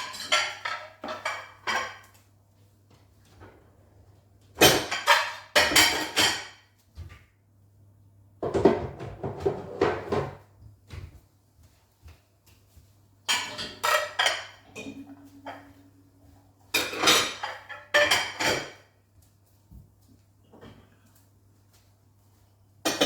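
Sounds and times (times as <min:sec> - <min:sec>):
dishes and pots clattering: 0:00.0 - 0:02.2, 0:04.5 - 0:06.7, 0:08.4 - 0:11.1, 0:13.2 - 0:19.0.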